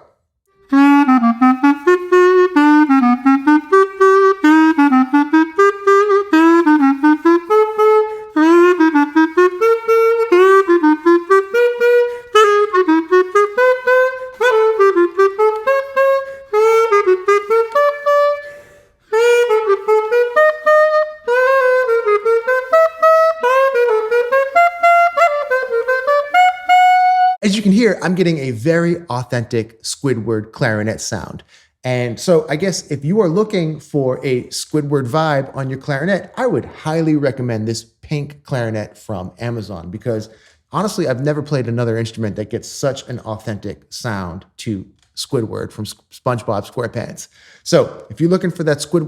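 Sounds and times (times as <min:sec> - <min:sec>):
squeaky clarinet melody: 0:00.6 - 0:27.5.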